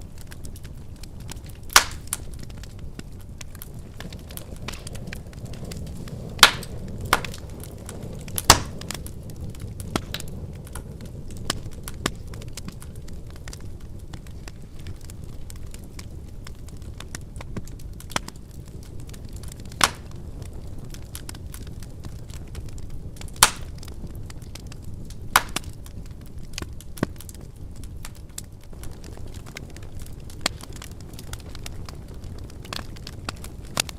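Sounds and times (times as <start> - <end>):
loud pops from fire: 0.0 - 33.9
wood fire crackling: 0.0 - 33.9.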